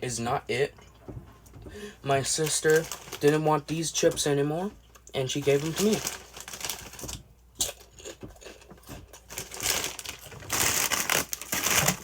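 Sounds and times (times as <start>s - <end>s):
plastic chip bag crinkling: 2.2s - 4.4s, 5.0s - 12.0s.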